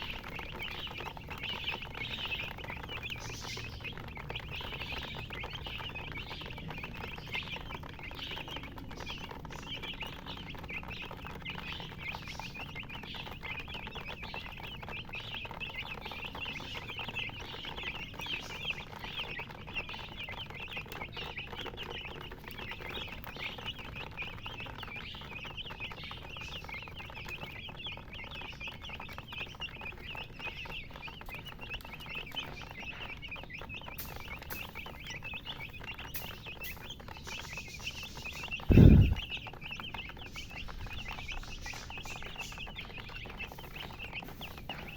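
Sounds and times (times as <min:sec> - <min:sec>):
chicks peeping: 0:00.0 - 0:44.9.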